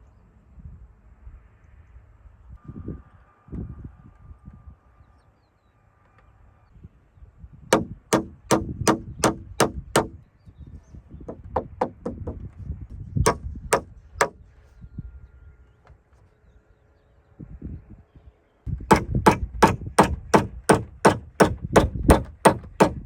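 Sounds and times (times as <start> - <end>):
hammer striking timber: 7.7 - 10.2, 11.3 - 12.4, 13.3 - 14.4, 18.8 - 23.0.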